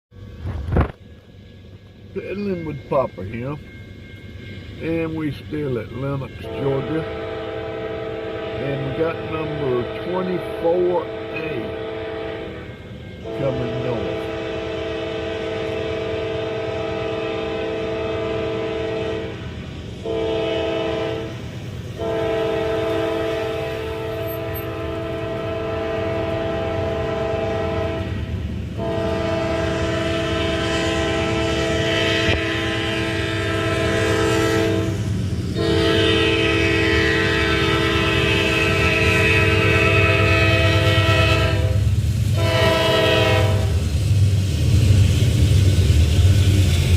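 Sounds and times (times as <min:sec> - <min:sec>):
diesel rumble and rail noise: 0:00.1 - 0:46.9
locomotive air horn blasts: 0:06.4 - 0:43.9.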